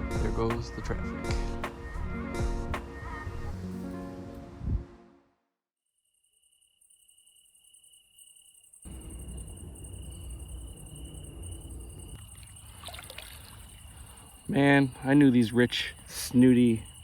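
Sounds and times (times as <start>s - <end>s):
night insects trilling: 6.0s - 17.0s.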